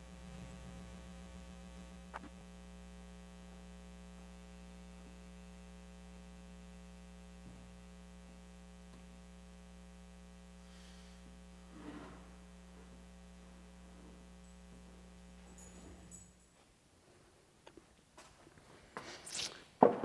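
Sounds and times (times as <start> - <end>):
faint electrical mains hum: 0.0 - 20.0.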